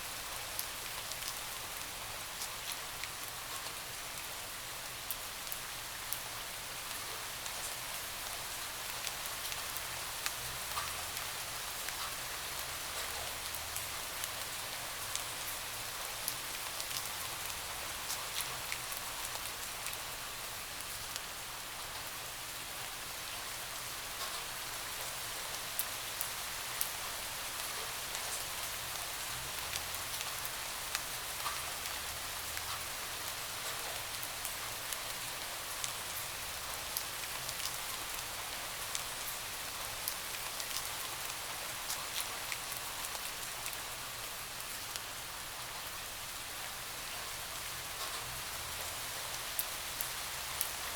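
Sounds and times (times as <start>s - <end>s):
rain hitting a window: 24.1s - 50.9s.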